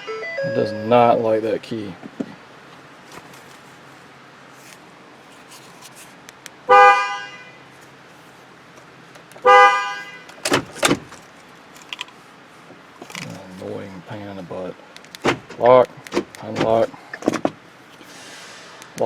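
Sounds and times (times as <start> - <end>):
pickup truck horn honking: 6.7 - 7.6, 9.4 - 10.4
sharp clicks: 14.9 - 16.8.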